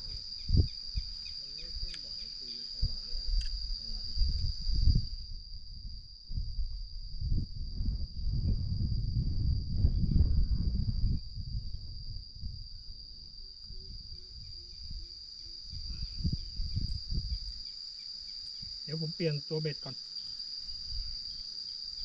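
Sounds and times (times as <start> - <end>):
insect chorus trilling: 0.0 - 22.0
low rumbling noise: 2.8 - 15.0.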